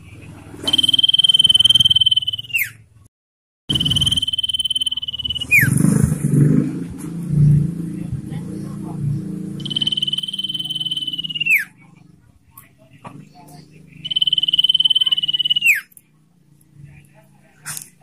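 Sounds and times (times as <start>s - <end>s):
bird whistling: 0.6s - 2.8s, 3.7s - 5.9s, 9.6s - 11.8s, 13.9s - 15.9s.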